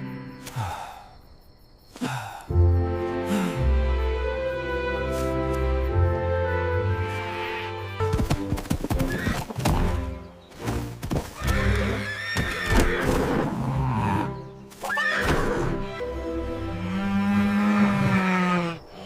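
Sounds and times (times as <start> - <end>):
background music: 2.4 - 19.0
horse whinnying: 11.4 - 15.8.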